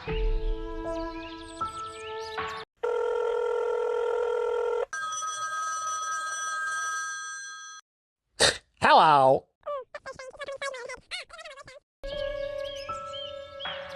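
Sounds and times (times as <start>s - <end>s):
music: 0.0s - 2.6s, 12.0s - 13.9s
telephone ringing: 2.8s - 7.8s.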